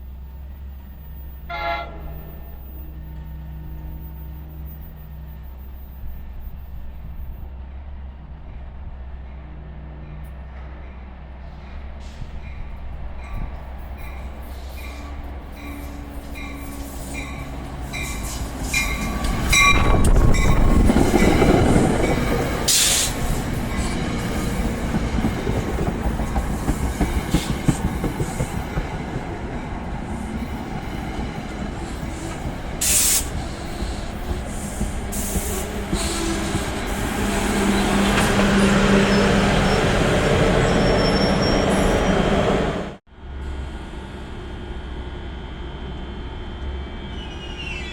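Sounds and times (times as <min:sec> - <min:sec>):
train rail and wheel rumble: 0:00.0 - 0:47.9
wheel squeal: 0:39.0 - 0:42.3, 0:47.0 - 0:47.9.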